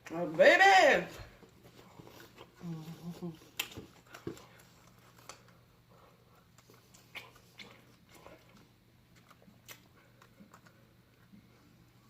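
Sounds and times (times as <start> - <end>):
faint low hum: 0.0 - 12.0
person chewing and biting: 6.5 - 10.7.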